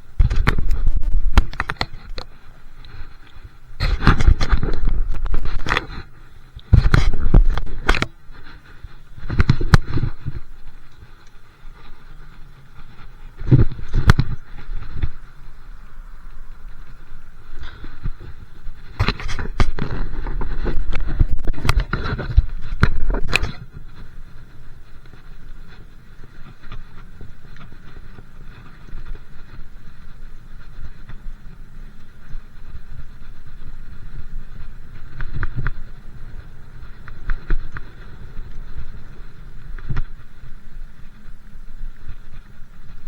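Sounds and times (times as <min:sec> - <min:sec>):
wind and road rumble: 0:00.0 - 0:43.0.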